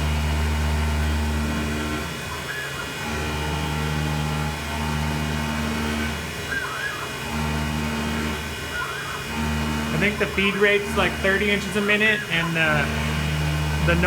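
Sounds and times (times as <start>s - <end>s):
milling machine humming: 0.0s - 14.0s.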